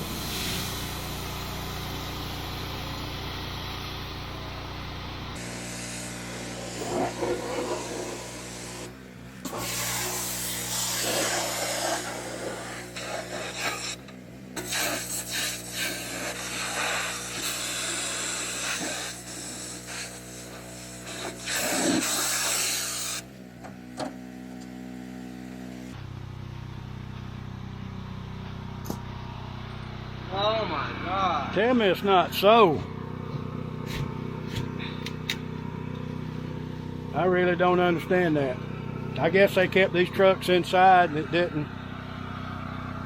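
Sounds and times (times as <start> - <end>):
spray wand hissing: 0.0 - 3.1, 5.4 - 23.2
pressure washer motor humming: 0.0 - 25.9, 27.7 - 43.0.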